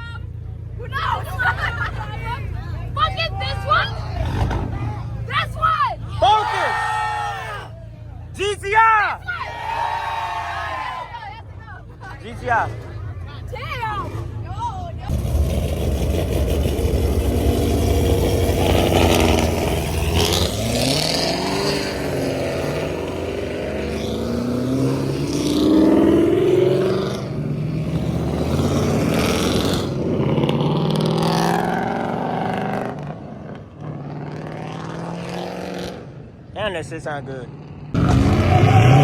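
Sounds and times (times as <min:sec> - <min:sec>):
car engines accelerating hard: 0:00.6 - 0:05.4, 0:14.0 - 0:39.0
deep rumble: 0:15.1 - 0:20.2.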